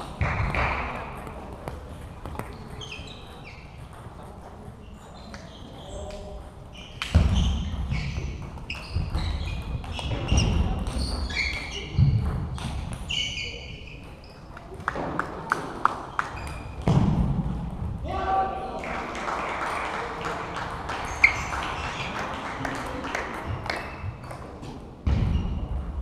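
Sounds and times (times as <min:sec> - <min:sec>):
shoes squeaking on floor: 0:00.5 - 0:14.8, 0:16.0 - 0:16.9, 0:21.0 - 0:22.2.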